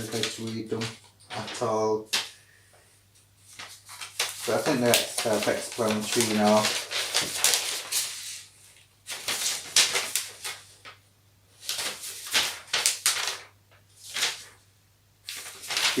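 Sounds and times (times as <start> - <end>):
paper rustling: 0.0 - 2.4, 3.4 - 11.0, 11.6 - 14.6, 15.2 - 16.0.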